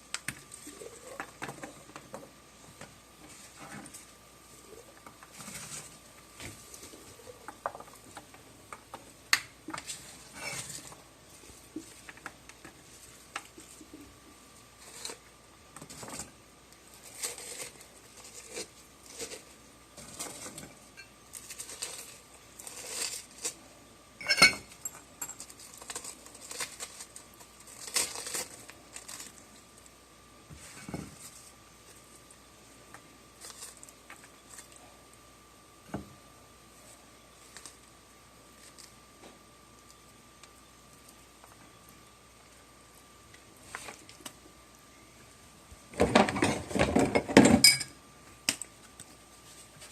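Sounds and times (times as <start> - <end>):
food and utensils being handled: 0.0 - 29.9, 30.5 - 35.0, 45.9 - 49.9
faint high hum: 0.0 - 49.9.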